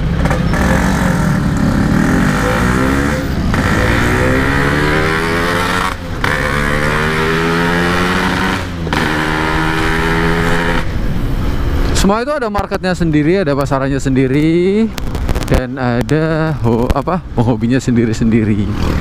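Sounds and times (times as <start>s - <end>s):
two-stroke motorcycle engine revving: 0.0s - 11.0s.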